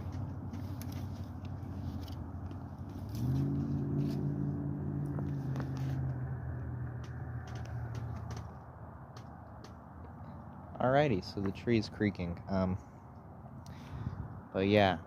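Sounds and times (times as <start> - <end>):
tree trunk creaking: 0.0 - 10.7.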